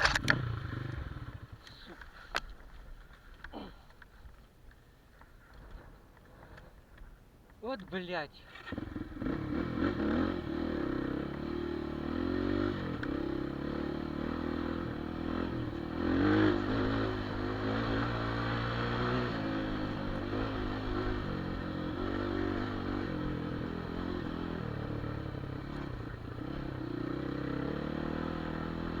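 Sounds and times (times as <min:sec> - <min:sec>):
motorcycle engine running unevenly: 0:00.0 - 0:01.6, 0:08.6 - 0:29.0.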